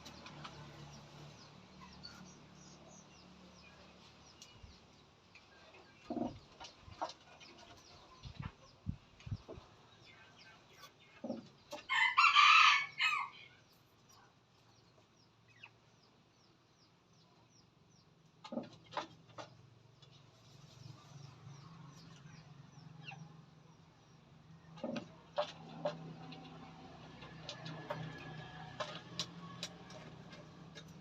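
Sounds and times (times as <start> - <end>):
rooster crowing: 11.9 - 13.4.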